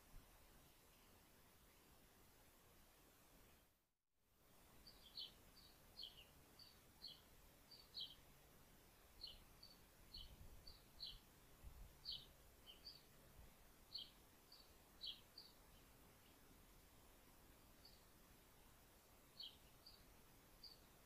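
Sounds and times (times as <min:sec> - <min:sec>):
faint small bird chirping: 0:04.6 - 0:08.3, 0:09.0 - 0:21.0.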